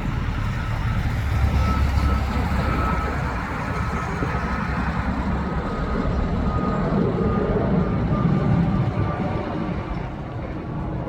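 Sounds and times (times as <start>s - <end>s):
jet engines rumbling overhead: 0.0s - 11.0s.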